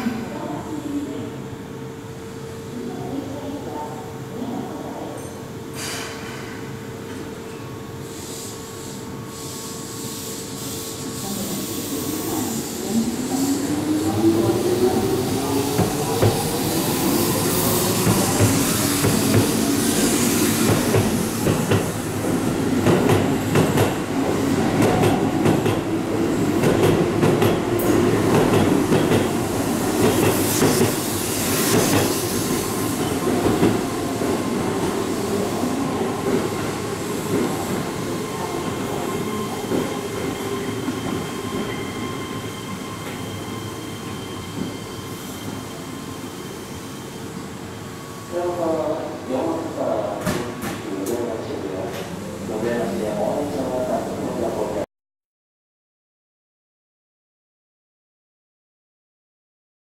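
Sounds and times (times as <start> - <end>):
electric train pulling out: 10.4 - 50.0
thin steady wheel squeal: 39.2 - 48.1.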